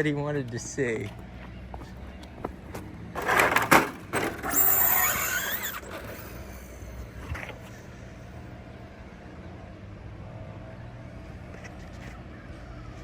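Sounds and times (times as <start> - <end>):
toy truck motor whining: 4.2 - 7.8.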